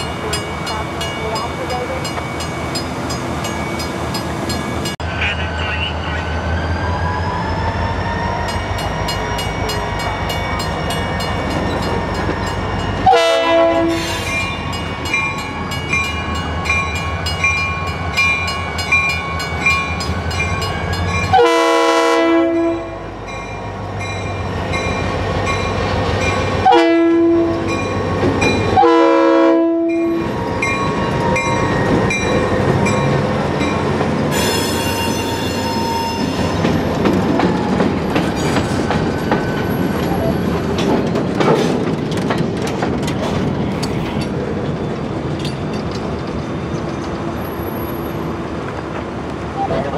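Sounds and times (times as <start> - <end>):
diesel locomotive running: 0.0 - 49.9
locomotive horn blasts: 13.0 - 14.0, 21.3 - 23.0, 26.6 - 27.7, 28.8 - 30.1.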